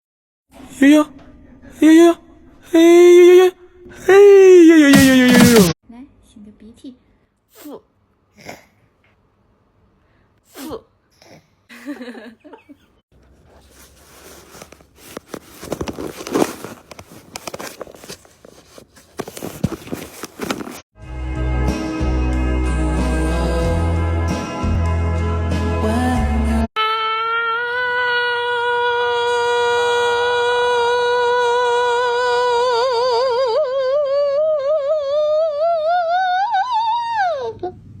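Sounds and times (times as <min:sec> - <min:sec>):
scuffing and rustling: 0:13.2 - 0:20.8.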